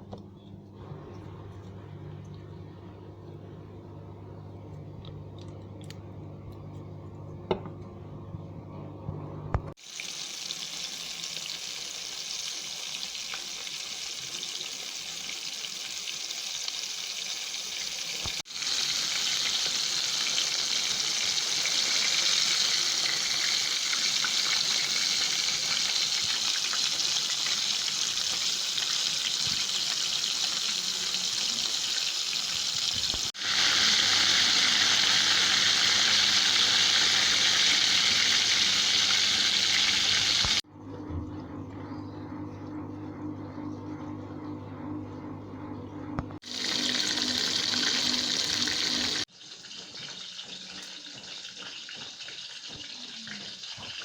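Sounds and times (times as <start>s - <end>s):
chicken sizzling in hot oil: 9.8s - 40.6s, 46.4s - 54.0s.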